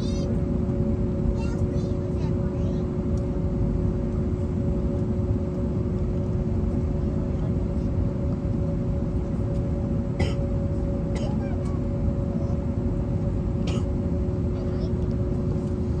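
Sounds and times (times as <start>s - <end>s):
aircraft cabin rumble: 0.0s - 16.0s.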